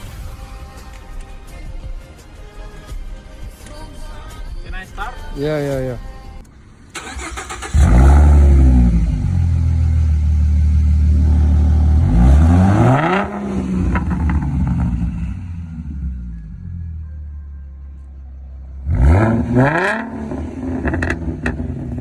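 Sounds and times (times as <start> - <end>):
car engine idling: 6.3 - 22.0
car engine cranking: 6.4 - 17.0, 18.8 - 22.0
car engine revving: 6.9 - 17.0, 18.7 - 22.0.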